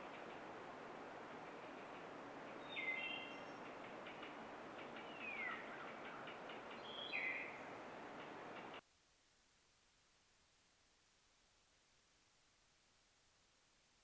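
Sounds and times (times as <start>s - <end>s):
steady background hiss: 0.0s - 14.0s
birds calling: 1.4s - 8.8s.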